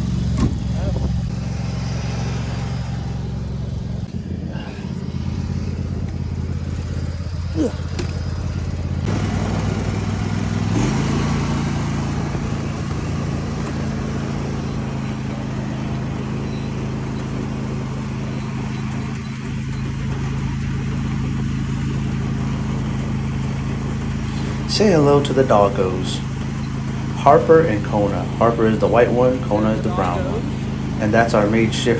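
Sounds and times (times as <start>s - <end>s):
engine running: 0.0s - 31.9s.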